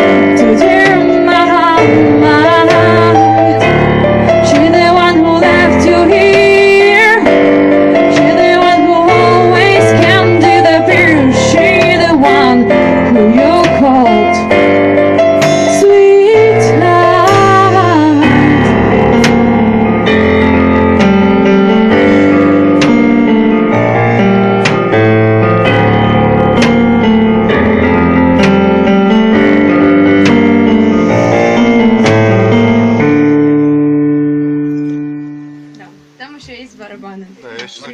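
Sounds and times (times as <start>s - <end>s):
woman singing: 0.0s - 14.6s, 15.4s - 18.7s
drum hits: 0.0s - 33.3s
bass and guitar: 0.0s - 36.6s
keyboard chords: 0.0s - 37.9s.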